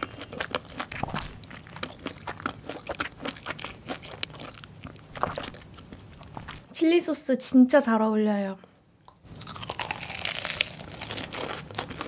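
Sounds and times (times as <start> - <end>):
crunching bites and chewing: 0.0 - 6.7, 9.1 - 12.0.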